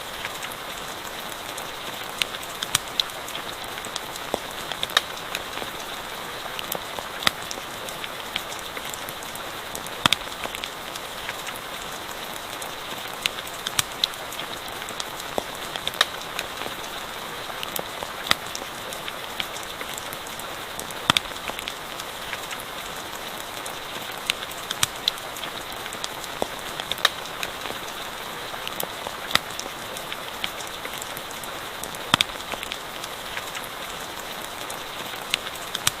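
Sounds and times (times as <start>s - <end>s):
steady rain: 0.0s - 36.0s
campfire pops and crackles: 1.6s - 12.0s, 20.8s - 22.7s, 23.5s - 28.0s, 28.6s - 34.0s.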